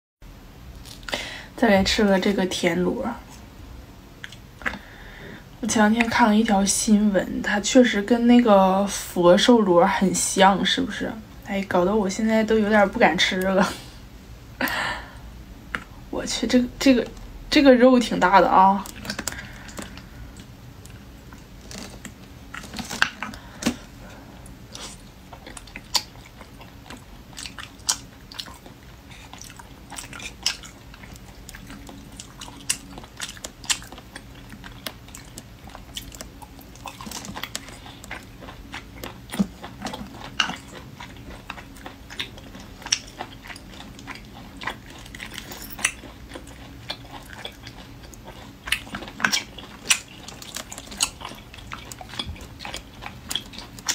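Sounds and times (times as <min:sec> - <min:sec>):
chewing and biting snails: 0:18.3 - 0:53.9.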